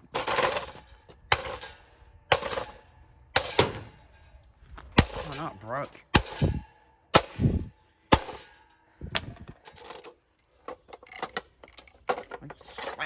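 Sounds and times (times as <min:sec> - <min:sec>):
fan being smashed: 0:00.1 - 0:02.8, 0:03.4 - 0:04.0, 0:04.9 - 0:05.5, 0:06.1 - 0:08.7.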